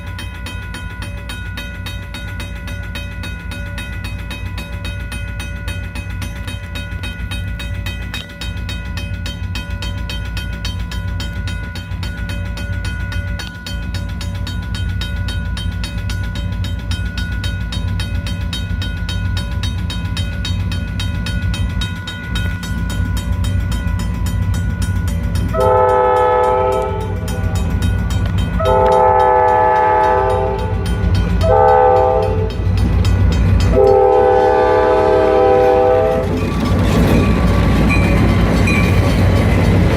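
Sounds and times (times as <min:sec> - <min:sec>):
diesel locomotive engine drone: 0:00.0 - 0:39.9
multi-tone air horn blasts: 0:25.6 - 0:27.2, 0:28.6 - 0:32.6, 0:33.7 - 0:36.3.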